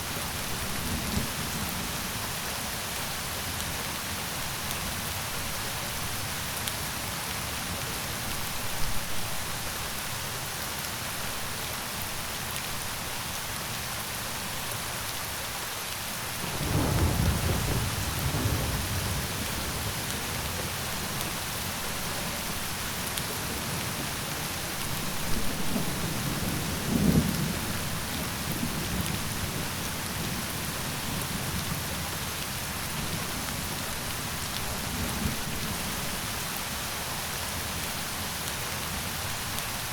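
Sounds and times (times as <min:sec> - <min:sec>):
steady rain falling: 0:00.0 - 0:39.9
thunder rolling: 0:16.6 - 0:20.0.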